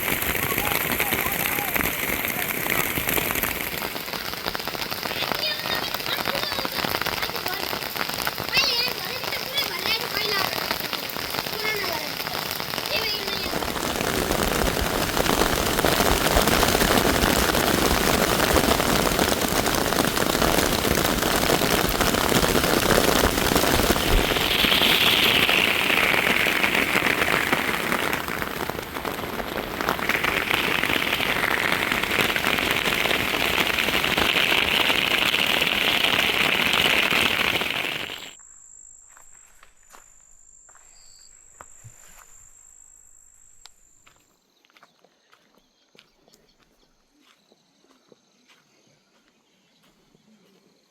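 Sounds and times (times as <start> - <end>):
heavy rain falling: 0.0 - 38.4.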